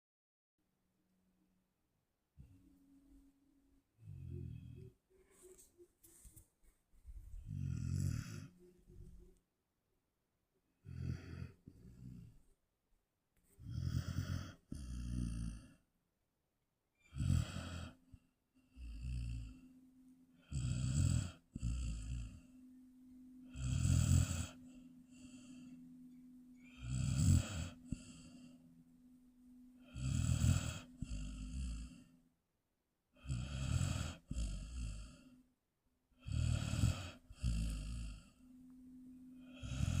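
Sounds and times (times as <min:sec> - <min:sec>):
dog snoring: 0:04.0 - 0:06.2, 0:07.2 - 0:09.2, 0:10.8 - 0:12.5, 0:13.4 - 0:15.9, 0:17.0 - 0:22.6, 0:23.4 - 0:25.9, 0:26.6 - 0:28.7, 0:29.8 - 0:32.2, 0:33.1 - 0:35.5, 0:36.1 - 0:38.5, 0:39.4 - 0:40.0.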